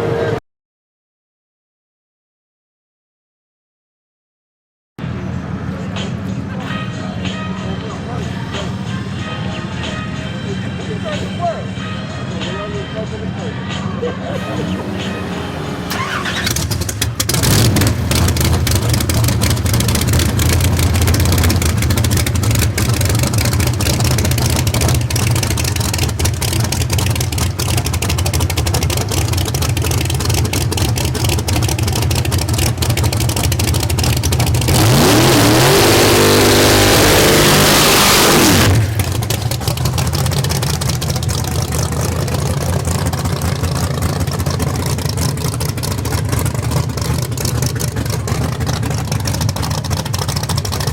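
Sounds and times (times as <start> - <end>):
drag car engine revving: 0.0 - 0.4, 14.4 - 50.9.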